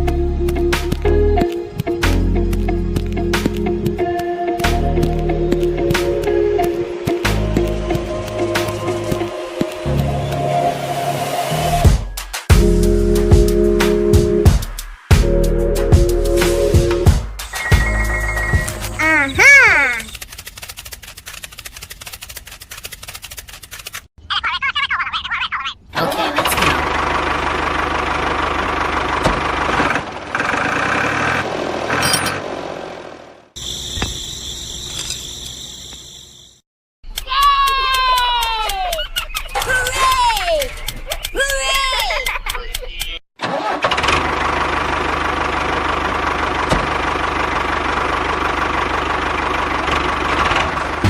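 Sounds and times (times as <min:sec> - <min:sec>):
small tractor engine running: 0:26.4 - 0:34.0, 0:43.4 - 0:51.0.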